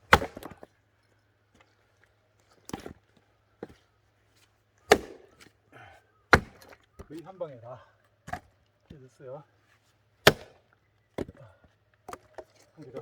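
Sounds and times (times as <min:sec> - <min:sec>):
axe splitting firewood: 0:00.0 - 0:00.7, 0:02.5 - 0:03.8, 0:04.8 - 0:07.2, 0:08.2 - 0:09.0, 0:10.2 - 0:13.0.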